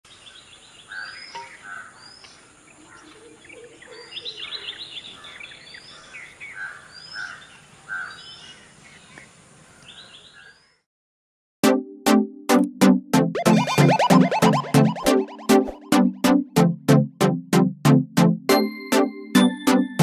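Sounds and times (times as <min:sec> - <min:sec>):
birds chirping and singing: 0:00.1 - 0:10.8.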